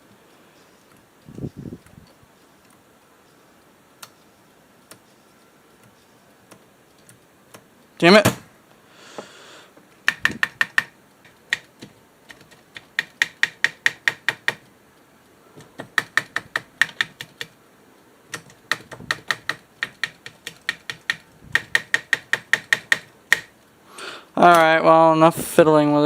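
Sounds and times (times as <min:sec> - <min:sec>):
switch clicking rapidly: 0:10.0 - 0:10.9, 0:12.8 - 0:14.6, 0:18.3 - 0:23.5.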